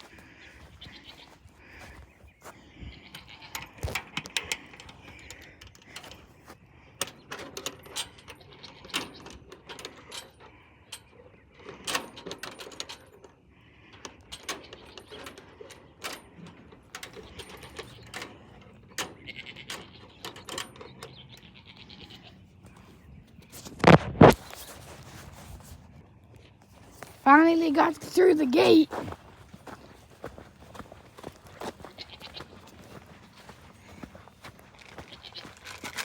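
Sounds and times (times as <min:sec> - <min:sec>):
sharp clicks and rattles: 0:29.0 - 0:36.0.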